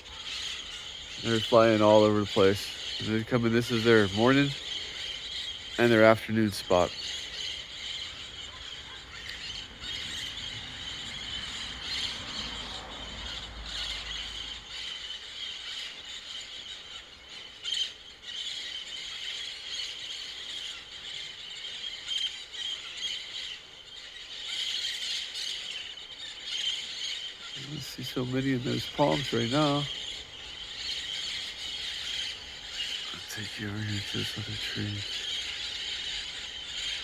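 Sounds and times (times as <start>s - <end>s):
parrots screeching: 0.0s - 37.0s.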